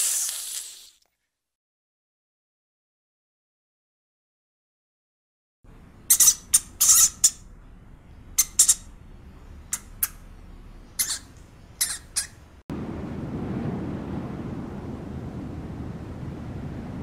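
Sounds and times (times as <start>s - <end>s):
small animal high-pitched calls: 6.1s - 7.4s, 8.4s - 8.9s, 11.0s - 12.4s.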